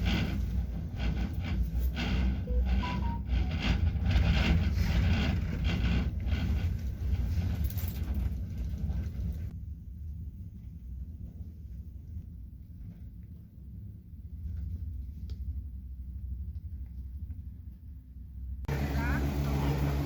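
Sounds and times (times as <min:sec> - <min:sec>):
vehicle rumble: 0:00.0 - 0:20.0.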